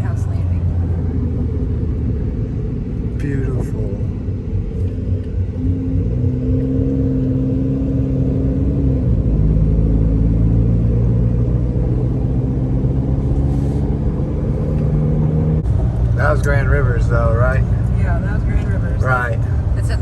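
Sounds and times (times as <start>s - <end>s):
car engine drone: 0.0s - 20.0s
road noise inside car: 0.0s - 20.0s.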